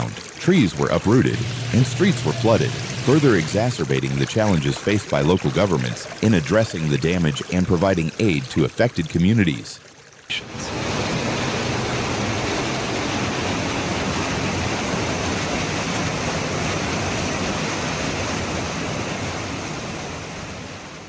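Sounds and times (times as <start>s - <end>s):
floodwater rushing: 0.0s - 19.1s.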